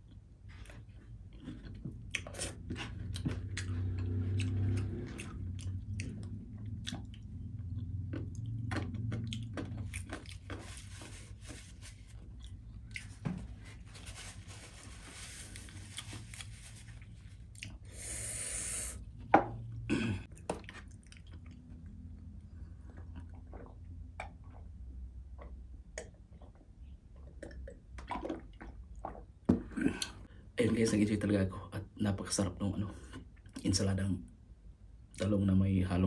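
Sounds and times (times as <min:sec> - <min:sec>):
person chewing food: 0:00.0 - 0:11.4, 0:12.0 - 0:13.2, 0:15.5 - 0:18.3, 0:20.0 - 0:30.3.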